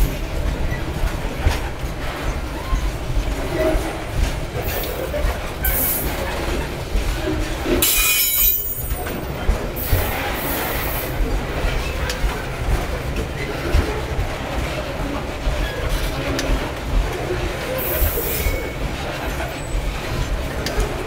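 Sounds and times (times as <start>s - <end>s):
steel wheels rumbling on rail: 0.0s - 21.0s
wheel clacks: 0.0s - 21.0s
high wheel squeal: 7.8s - 8.9s.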